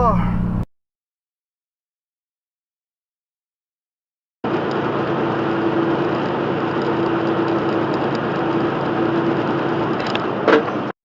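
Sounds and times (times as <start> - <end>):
road noise: 4.4 - 10.9
truck engine droning: 4.4 - 10.9.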